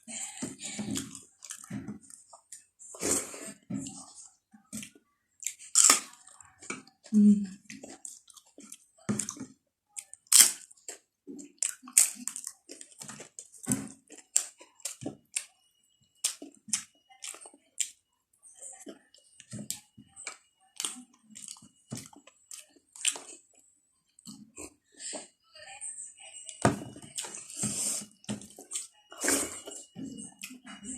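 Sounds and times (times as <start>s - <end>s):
wet chewing: 10.0s - 15.5s, 19.6s - 23.5s.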